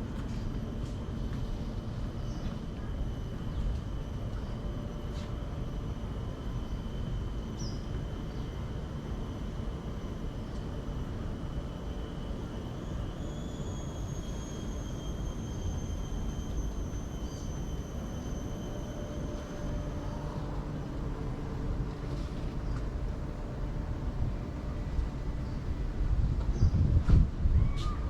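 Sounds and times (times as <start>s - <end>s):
constant low rumble: 0.0s - 12.4s, 18.9s - 28.0s.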